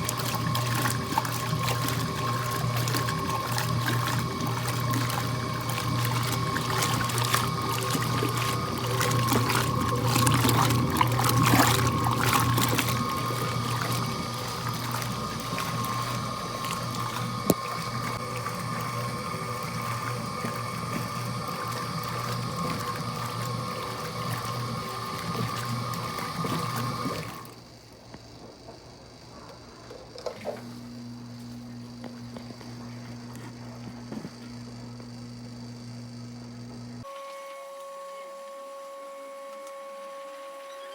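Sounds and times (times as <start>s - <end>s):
water running and splashing: 0.0s - 27.6s
washing machine motor hum: 0.0s - 40.9s.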